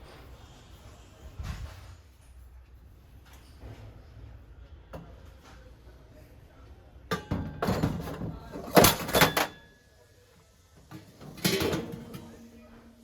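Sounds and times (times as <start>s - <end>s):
objects knocking and clattering: 7.1s - 9.6s, 10.9s - 12.3s.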